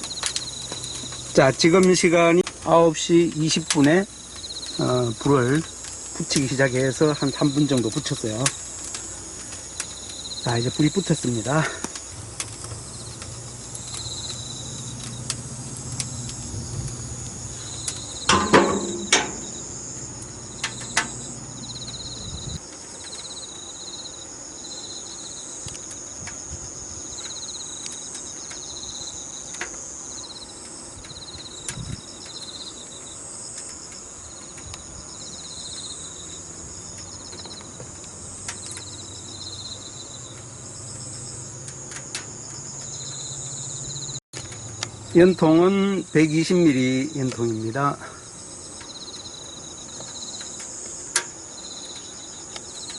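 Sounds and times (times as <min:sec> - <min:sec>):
insects chirping: 0:00.0 - 0:52.9
low hum: 0:12.1 - 0:22.6.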